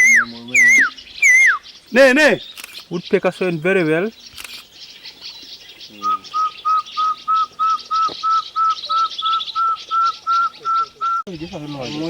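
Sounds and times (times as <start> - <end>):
bird whistling rising notes: 0.0 - 1.7, 6.0 - 11.3
high chirping of birds: 0.0 - 12.0.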